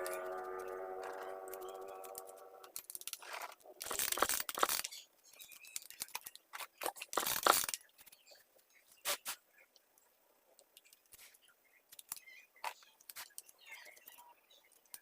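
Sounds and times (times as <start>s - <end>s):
steady held tone: 0.0s - 2.8s.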